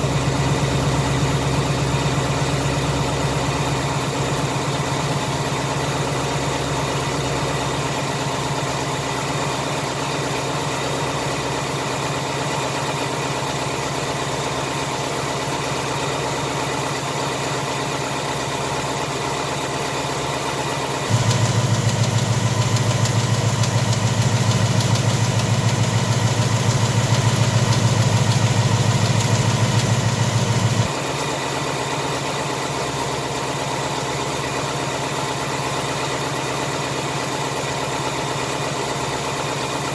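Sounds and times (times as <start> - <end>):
car engine idling: 20.8 - 31.8.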